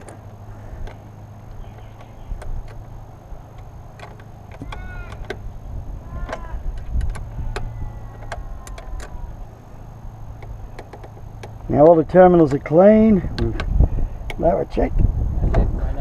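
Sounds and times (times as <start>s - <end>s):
hand tools clicking and knocking: 0.0s - 5.4s, 6.2s - 9.2s, 10.4s - 12.0s
steady low hum: 0.0s - 16.0s.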